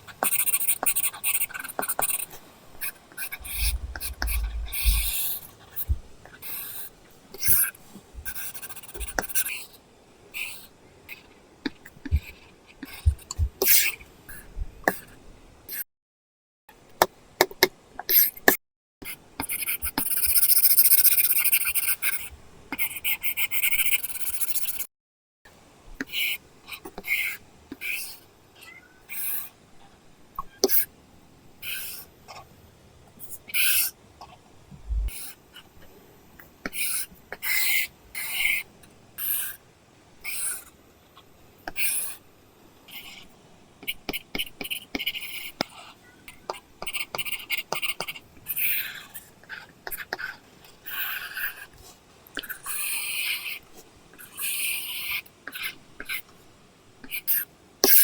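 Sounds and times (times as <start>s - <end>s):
stylus scratchy drawing strokes: 0.2s - 9.8s, 19.4s - 24.9s
stylus tapping on screen: 3.4s - 5.2s.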